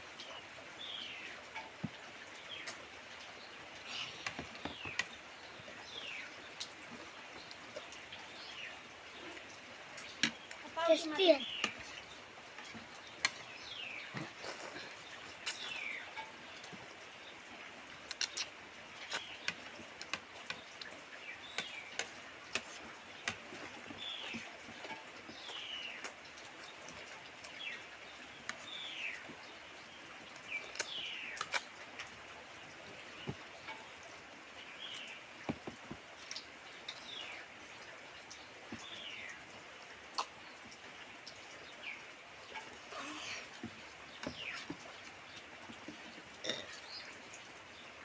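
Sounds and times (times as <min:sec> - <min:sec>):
eating clicks and taps: 0:04.0 - 0:05.2, 0:10.0 - 0:10.6, 0:18.0 - 0:27.2, 0:34.9 - 0:37.0.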